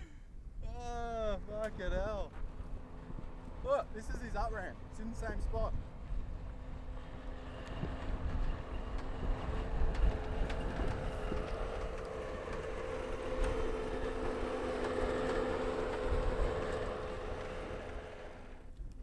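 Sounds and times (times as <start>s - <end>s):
distant engine running: 0.0s - 19.0s
wind on microphone: 5.4s - 17.4s.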